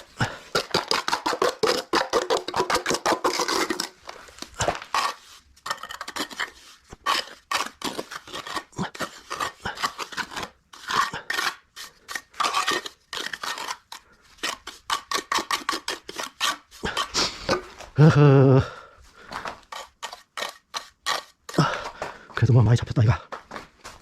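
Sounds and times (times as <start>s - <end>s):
trowel scraping mortar: 0.0s - 18.0s, 19.3s - 21.9s
short vocal sound: 18.0s - 18.8s.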